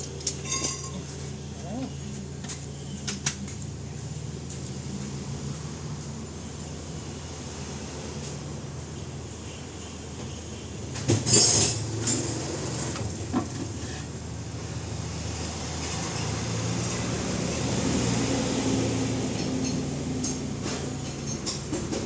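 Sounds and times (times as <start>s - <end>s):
vehicle engine drone: 0.0s - 22.0s.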